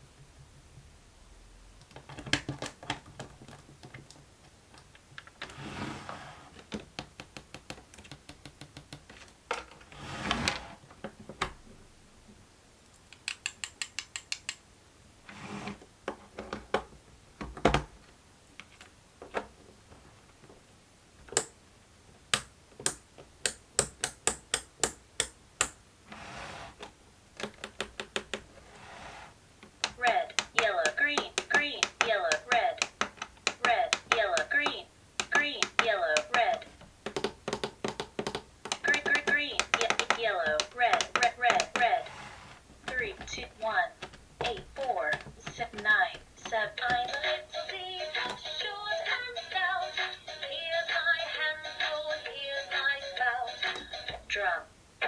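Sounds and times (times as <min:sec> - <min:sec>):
sliding or rubbing sounds: 0:05.4 - 0:06.6, 0:09.9 - 0:10.8, 0:15.2 - 0:15.8, 0:26.1 - 0:26.9, 0:28.5 - 0:29.4, 0:40.0 - 0:45.6
plastic fidget board clicks: 0:29.8 - 0:42.0.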